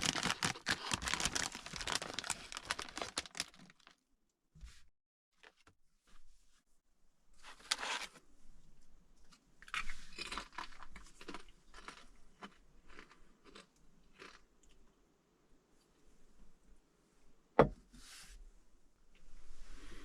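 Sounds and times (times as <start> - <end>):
crunching and crinkling: 0.0 - 4.0, 9.6 - 14.8.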